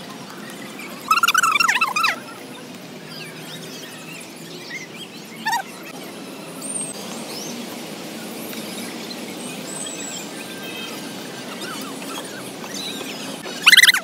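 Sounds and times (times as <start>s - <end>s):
outdoor background noise: 0.0s - 14.0s
bird chirps and calls: 1.1s - 2.2s, 3.2s - 5.7s, 11.5s - 14.0s
loud high squealing call: 1.1s - 2.2s, 13.6s - 14.0s.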